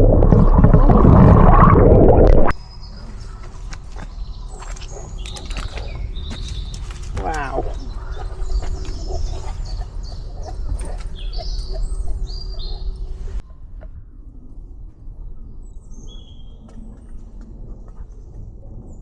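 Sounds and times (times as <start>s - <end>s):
low rumble: 0.0s - 3.6s
small birds chirping: 2.5s - 13.4s.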